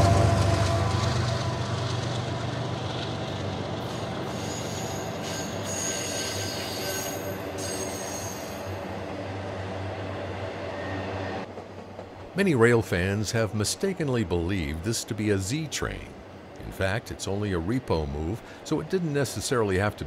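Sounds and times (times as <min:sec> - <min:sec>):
freight train wheels rumbling and rattling: 0:00.0 - 0:20.0
high thin wheel squeal: 0:04.2 - 0:08.8.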